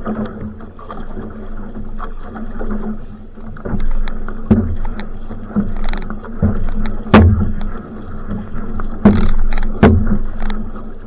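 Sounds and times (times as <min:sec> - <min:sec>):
paddle strokes and splashes: 0:00.0 - 0:11.0.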